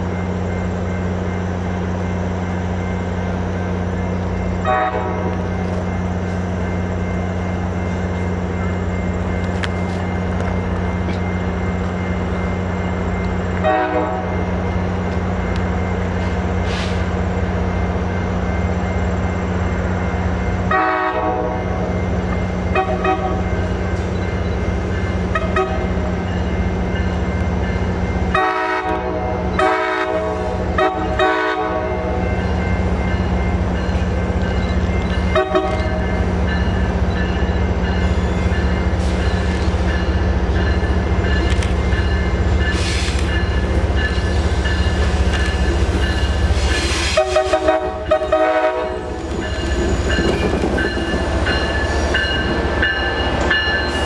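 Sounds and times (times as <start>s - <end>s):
diesel train engine drone: 0.0s - 54.0s
train horn blasts: 4.6s - 5.4s, 13.6s - 14.4s, 20.7s - 21.9s, 22.7s - 23.5s, 25.3s - 26.0s, 28.3s - 32.2s, 35.3s - 36.1s, 46.9s - 49.1s.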